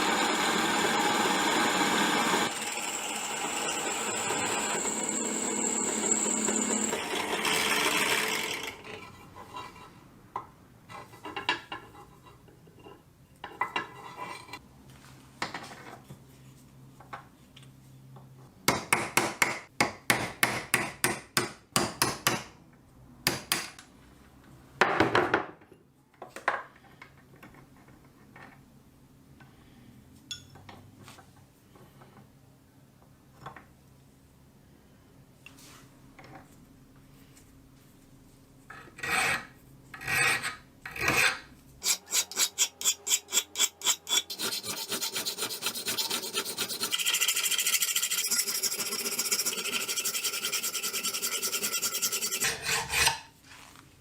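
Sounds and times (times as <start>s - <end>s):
power tool running: 0.0s - 8.8s.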